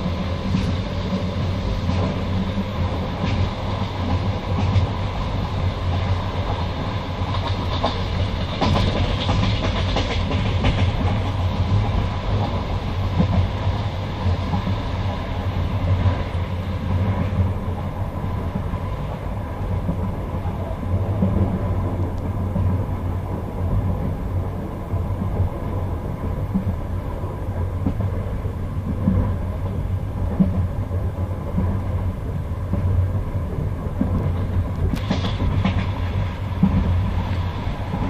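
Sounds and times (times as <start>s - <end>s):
train wheels rumbling on rail: 0.0s - 38.0s
wheels clacking over rail joints: 7.2s - 13.6s, 33.6s - 38.0s.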